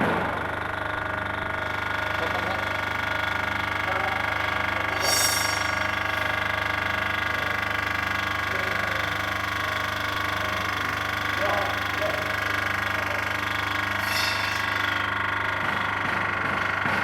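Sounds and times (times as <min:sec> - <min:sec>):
paving-block machine humming: 0:00.0 - 0:17.0
brief high-pitched noise: 0:14.0 - 0:14.7.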